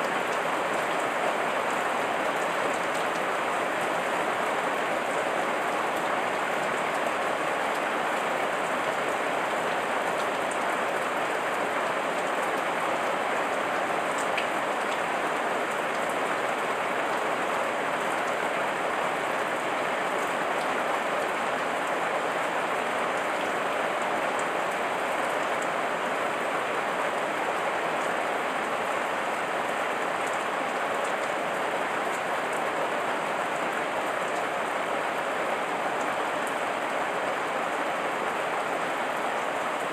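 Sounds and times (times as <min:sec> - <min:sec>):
heavy rain on leaves: 0:00.0 - 0:39.9.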